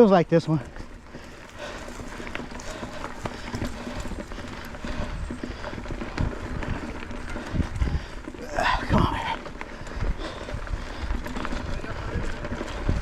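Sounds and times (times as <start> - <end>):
tyres rumbling on rocky trail: 0.0 - 13.0.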